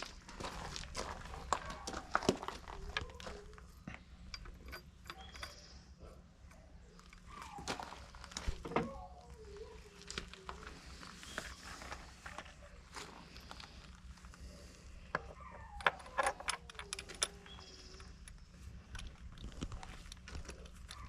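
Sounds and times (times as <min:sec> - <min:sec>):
hand tools clicking and clinking: 0:02.8 - 0:06.0, 0:15.1 - 0:21.0.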